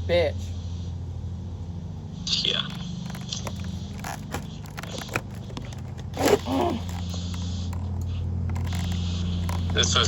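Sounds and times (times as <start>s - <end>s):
steady low hum: 0.0s - 10.0s
pliers clicking and creaking: 2.7s - 9.8s.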